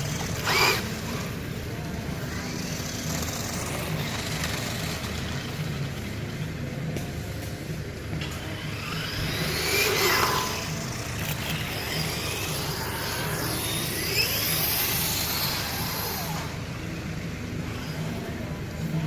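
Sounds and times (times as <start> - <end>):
electric motor whining: 0.0 - 1.5, 8.3 - 16.8
steady low hum: 0.0 - 19.0.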